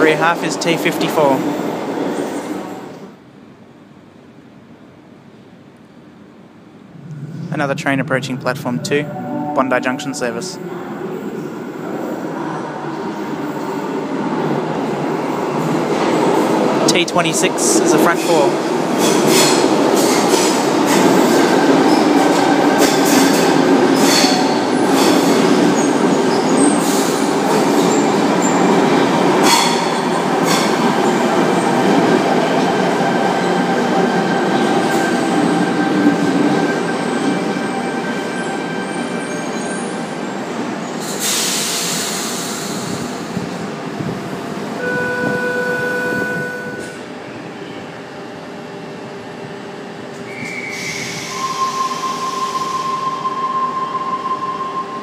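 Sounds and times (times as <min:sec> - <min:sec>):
steady electronic tone: 0:06.8 - 0:11.1, 0:44.8 - 0:47.0
train brakes rumbling and squealing: 0:16.4 - 0:31.6, 0:32.6 - 0:43.6, 0:50.2 - 0:55.0
air hiss: 0:41.0 - 0:43.1
door closing beeping tone: 0:44.8 - 0:47.0.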